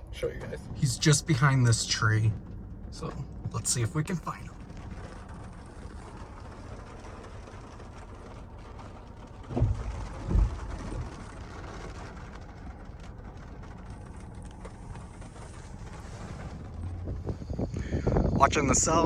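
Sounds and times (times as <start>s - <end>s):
wind buffeting microphone: 15.7s - 19.0s.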